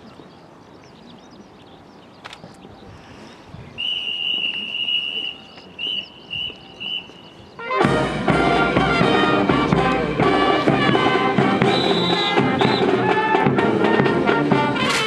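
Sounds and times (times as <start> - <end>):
whistle blasts: 3.8 - 7.9, 10.9 - 13.5
military brass band playing: 7.6 - 15.0.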